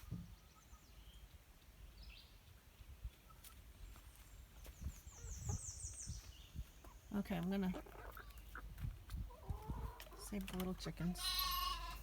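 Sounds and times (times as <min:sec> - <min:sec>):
wind rumble on microphone: 0:04.8 - 0:06.9, 0:08.6 - 0:10.0.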